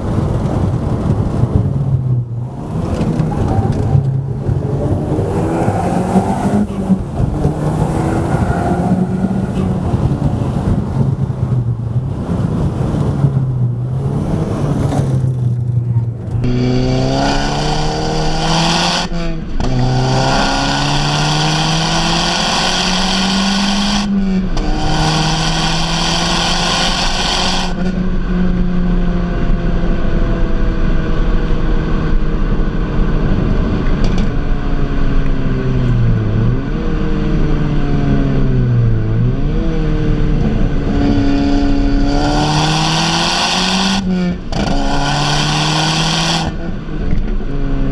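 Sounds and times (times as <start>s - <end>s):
car engine accelerating hard: 0.0s - 47.9s.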